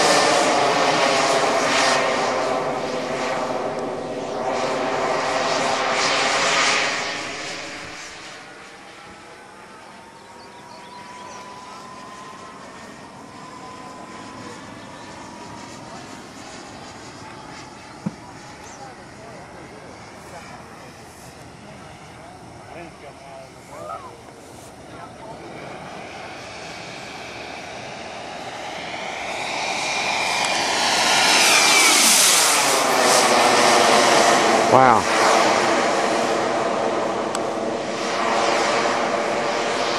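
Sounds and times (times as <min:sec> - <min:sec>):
model jet engine whine: 0:00.0 - 0:39.9.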